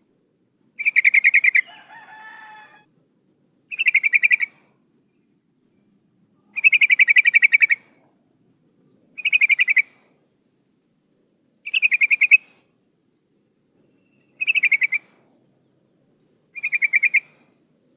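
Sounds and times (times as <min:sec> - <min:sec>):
bird calling in pulsed notes: 0:06.4 - 0:07.8, 0:09.2 - 0:10.0, 0:11.6 - 0:12.5, 0:13.9 - 0:15.3, 0:16.5 - 0:17.6.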